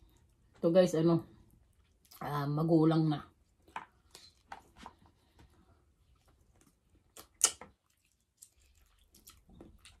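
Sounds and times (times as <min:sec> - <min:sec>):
person chewing vegetable: 0:01.4 - 0:02.2, 0:03.4 - 0:10.0
mouth clicks: 0:07.1 - 0:07.7.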